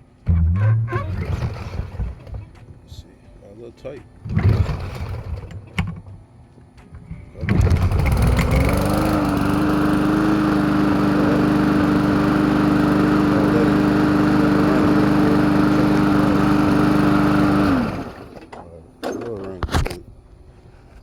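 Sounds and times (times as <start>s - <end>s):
lawn mower engine starting: 0.0s - 3.1s, 4.2s - 6.2s, 6.9s - 20.0s.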